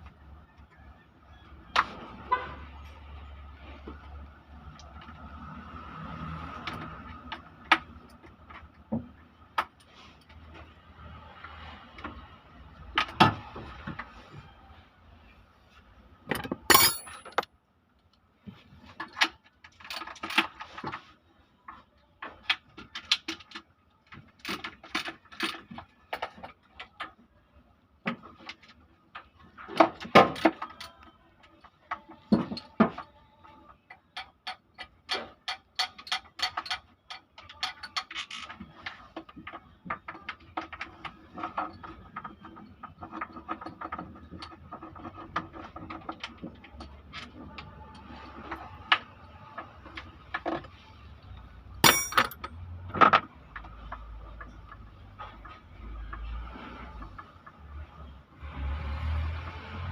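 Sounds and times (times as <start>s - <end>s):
metal tools clinking: 16.3s - 17.5s, 51.8s - 52.6s.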